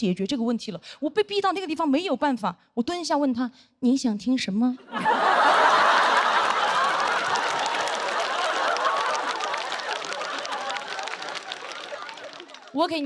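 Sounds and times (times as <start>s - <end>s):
audience laughing: 4.9s - 12.8s
scattered clapping: 5.4s - 12.8s.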